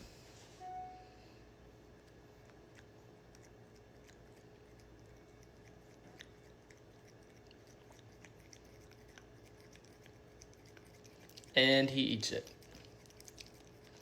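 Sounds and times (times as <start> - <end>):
faint steady hum: 0.0 - 14.0
cat licking and chewing: 1.7 - 14.0.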